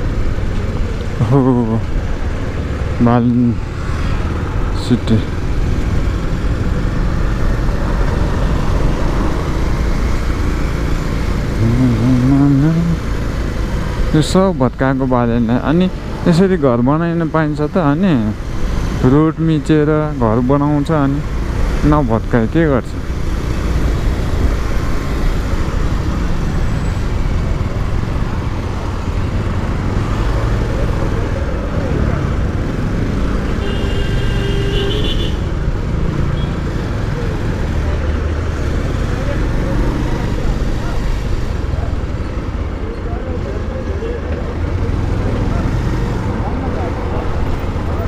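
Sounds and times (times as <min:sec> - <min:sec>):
motorcycle engine rumbling: 0:00.0 - 0:48.0
wind and road noise: 0:00.0 - 0:48.0.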